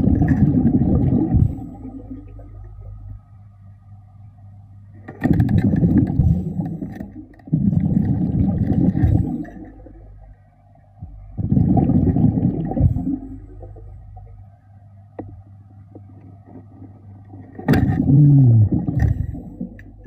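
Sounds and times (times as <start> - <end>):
underwater breath bubbles: 0.0 - 2.5, 5.4 - 9.9, 11.4 - 14.0, 17.7 - 20.0.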